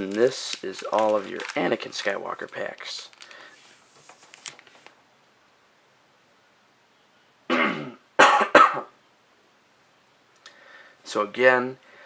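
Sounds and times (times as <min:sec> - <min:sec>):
person clearing throat: 0:07.5 - 0:08.9
person coughing sharply: 0:07.5 - 0:08.9.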